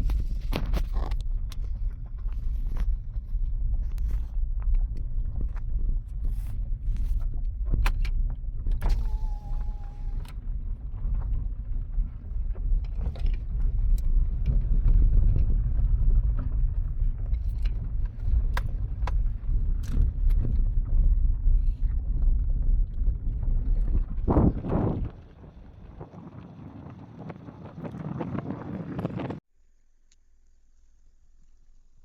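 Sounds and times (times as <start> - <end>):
tyres and engine rumbling: 6.2 - 21.2.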